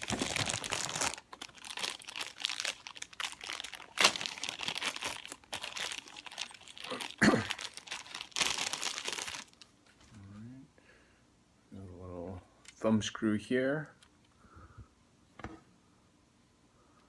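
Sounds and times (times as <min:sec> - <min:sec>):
packaging crinkling: 0:00.0 - 0:09.7.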